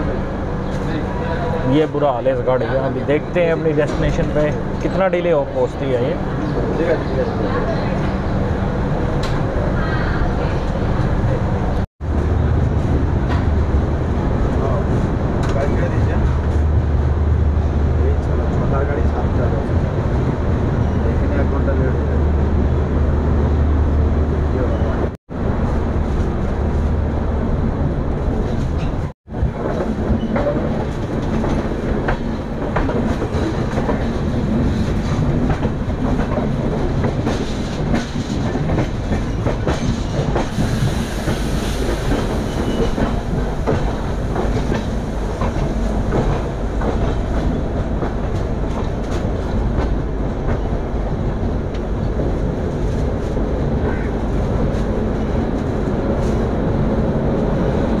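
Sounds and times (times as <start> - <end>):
train coach rumble: 0.0 - 58.0.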